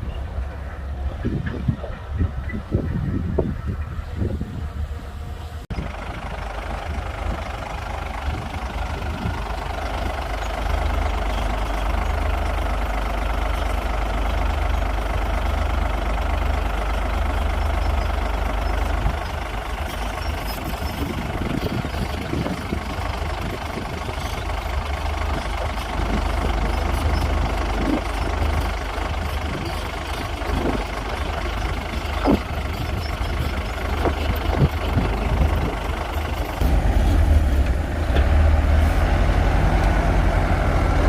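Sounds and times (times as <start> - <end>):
bulldozer diesel engine running: 0.0 - 41.0.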